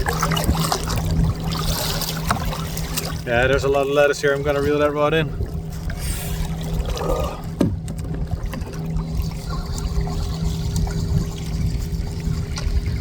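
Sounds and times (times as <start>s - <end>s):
steady low hum: 0.0s - 13.0s
water trickling and lapping: 0.0s - 13.0s.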